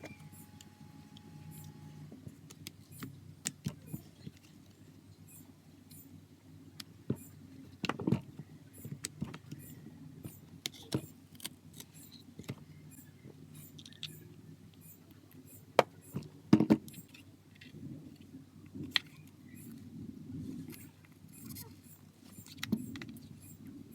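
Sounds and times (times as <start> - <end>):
low steady hum: 0.0 - 6.4
clicks of tools on phone parts: 8.8 - 17.2.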